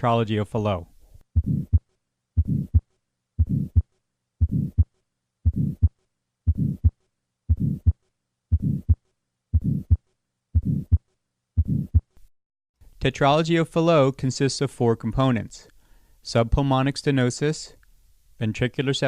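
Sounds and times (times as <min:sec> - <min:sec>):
heartbeat with murmur: 0:01.4 - 0:01.8, 0:02.4 - 0:10.0, 0:10.6 - 0:11.0, 0:11.6 - 0:12.1.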